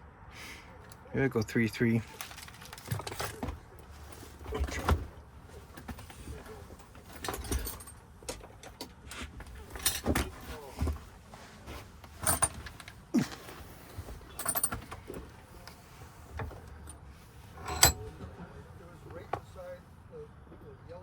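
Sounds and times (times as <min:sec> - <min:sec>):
clinks of small metal lock parts: 0:02.1 - 0:11.0, 0:12.0 - 0:17.0, 0:17.6 - 0:18.2.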